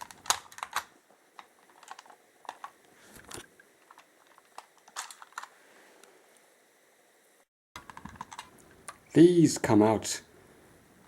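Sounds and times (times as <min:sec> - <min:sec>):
plastic toy parts clicking: 0:00.0 - 0:05.5, 0:07.8 - 0:08.5.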